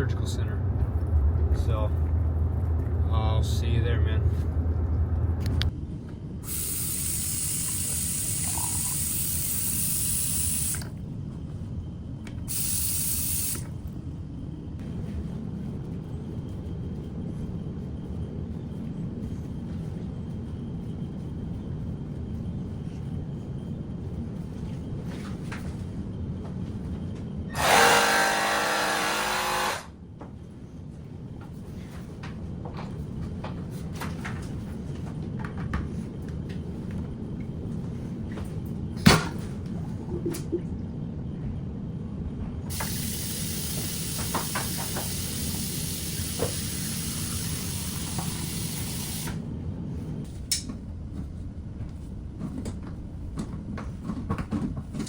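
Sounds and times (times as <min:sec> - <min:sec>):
road rumble inside vehicle: 0:00.0 - 0:06.4
hissing noises: 0:06.4 - 0:10.9, 0:42.7 - 0:49.4.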